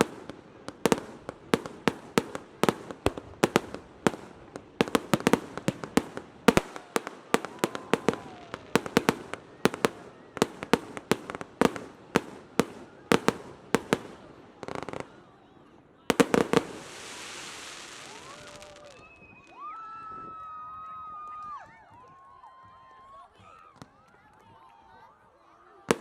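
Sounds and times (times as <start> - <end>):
fireworks banging: 0.0 - 15.2, 16.1 - 19.2.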